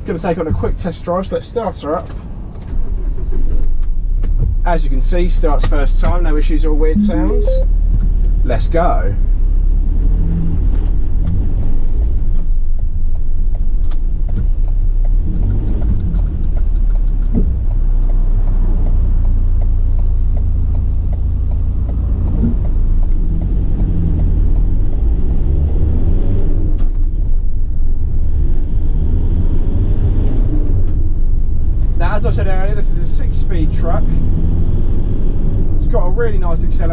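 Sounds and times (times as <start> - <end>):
road noise: 7.8 - 36.9.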